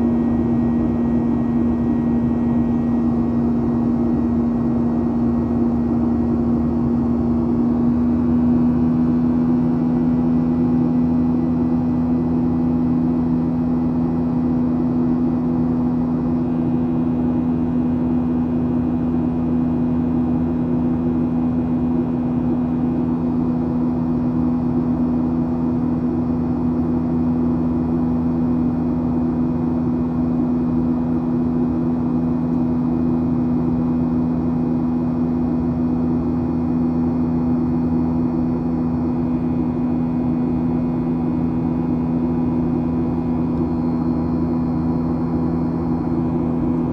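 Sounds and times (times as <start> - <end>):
low hum of jet engines: 0.0 - 46.9.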